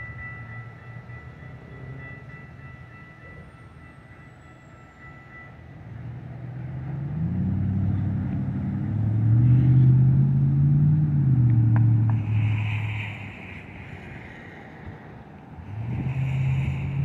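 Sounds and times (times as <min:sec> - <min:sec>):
vehicle engine accelerating: 0:06.0 - 0:13.2, 0:15.6 - 0:17.0.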